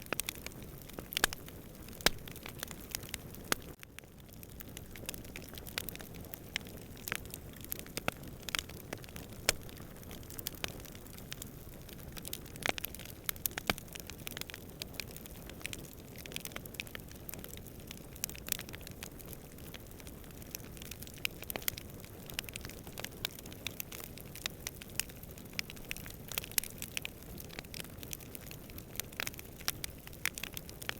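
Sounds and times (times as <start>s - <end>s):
campfire crackling and popping: 0.0s - 30.9s.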